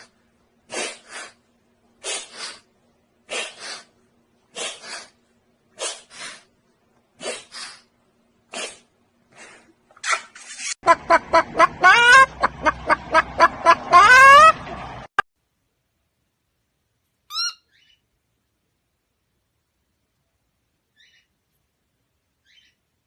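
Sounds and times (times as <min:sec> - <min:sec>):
faint steady hum: 0:00.0 - 0:07.2
bird making raspy huffs: 0:02.0 - 0:02.7, 0:03.3 - 0:03.9, 0:04.5 - 0:05.2, 0:05.8 - 0:06.5, 0:07.2 - 0:07.9.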